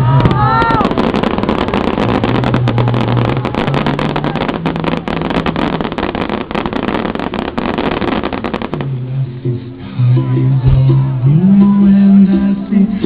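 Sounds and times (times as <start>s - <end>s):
fireworks crackling: 0.0s - 9.9s.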